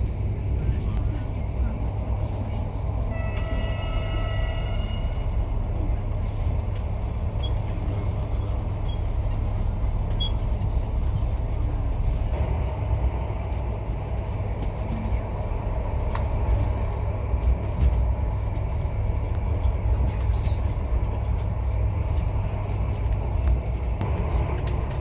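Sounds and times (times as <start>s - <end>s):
vehicle rumbling in motion: 0.0s - 25.0s.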